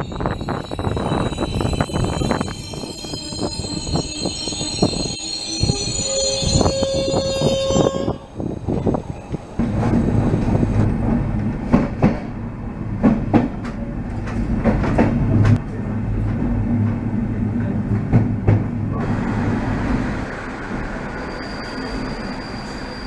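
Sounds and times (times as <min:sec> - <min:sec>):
train low drone: 0:00.0 - 0:23.0
train wheels clicking over rail joints: 0:08.7 - 0:15.6.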